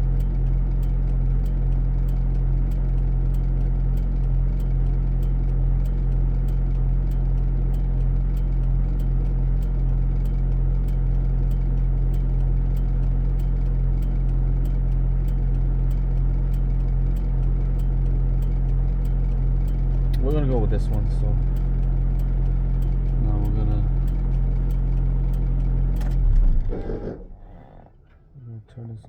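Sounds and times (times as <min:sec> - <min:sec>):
vehicle engine idling: 0:00.0 - 0:29.0
faint light ticking: 0:00.1 - 0:26.2.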